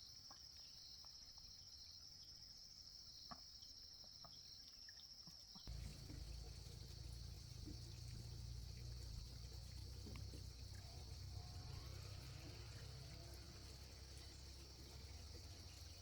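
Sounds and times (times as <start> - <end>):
insects chirring: 5.5 - 16.0
small ticks: 5.6 - 16.0
low rumble: 5.7 - 16.0.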